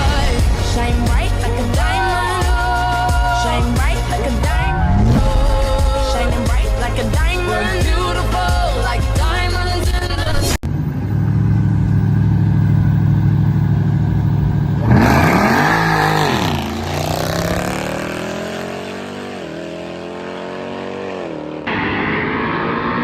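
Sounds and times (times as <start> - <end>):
car engine rumbling and revving: 9.4 - 23.0.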